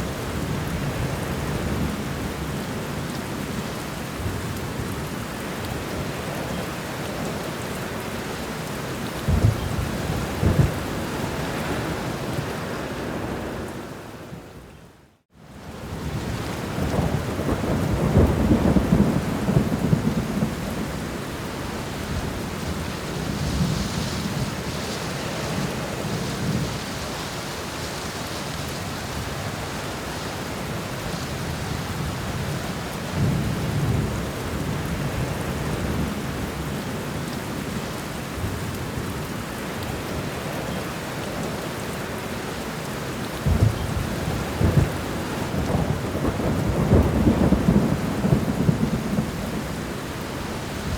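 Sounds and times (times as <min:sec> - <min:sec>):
steady rain: 0:00.0 - 0:50.9
thunder rumbling: 0:09.2 - 0:12.1, 0:16.7 - 0:26.9, 0:43.4 - 0:50.9.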